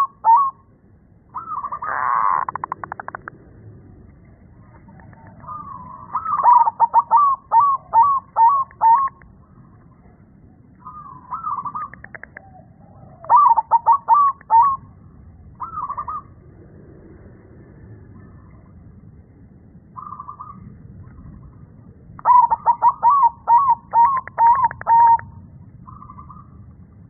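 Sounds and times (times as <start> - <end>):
dove cooing: 0.0 - 0.7, 1.3 - 3.6, 4.6 - 9.2, 10.8 - 14.9, 15.6 - 16.4, 22.2 - 26.6.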